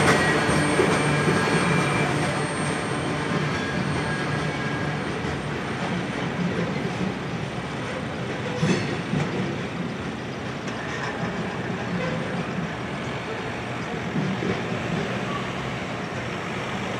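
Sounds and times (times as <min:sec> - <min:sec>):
steel wheels rumbling on rail: 0:00.0 - 0:16.9.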